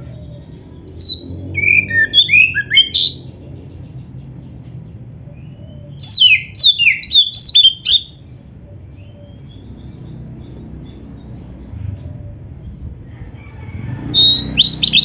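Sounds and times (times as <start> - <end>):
bird singing whistled notes: 0.9 - 3.3, 5.4 - 8.2, 14.2 - 15.0.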